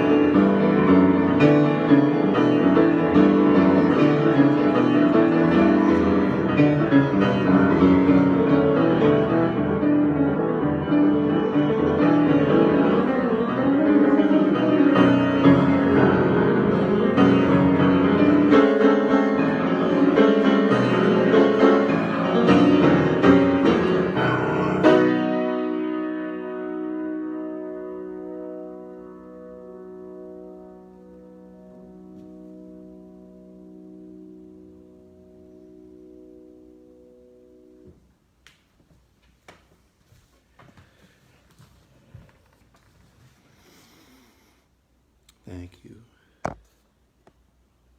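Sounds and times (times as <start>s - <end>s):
piano improvisation: 0.0s - 38.2s.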